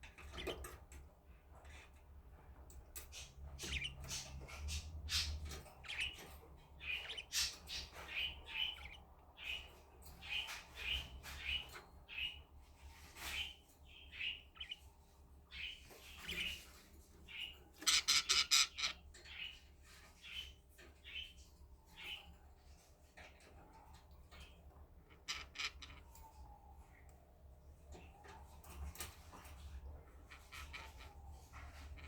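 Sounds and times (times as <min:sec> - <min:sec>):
budgerigars chirping and squawking: 0:03.0 - 0:21.4, 0:24.4 - 0:26.1, 0:28.7 - 0:32.0.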